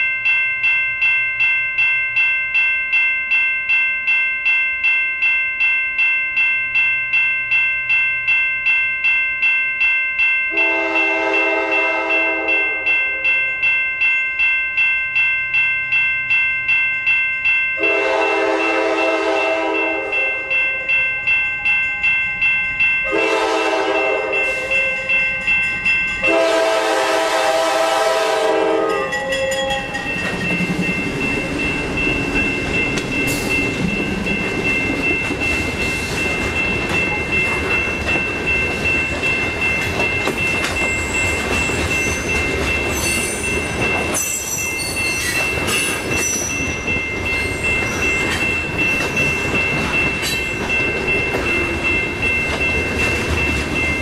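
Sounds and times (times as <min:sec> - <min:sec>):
crossing signal bell ringing: 0:00.0 - 0:54.0
train wheel and rail noise: 0:00.0 - 0:54.0
locomotive air horn blasts: 0:10.5 - 0:12.9, 0:17.8 - 0:20.3, 0:23.1 - 0:25.0, 0:26.2 - 0:29.1.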